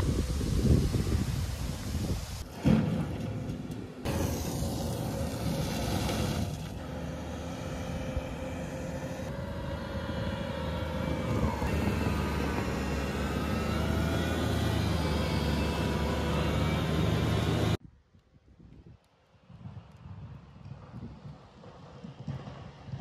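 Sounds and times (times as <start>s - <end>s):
forestry mulcher machine drone: 0.0s - 17.8s.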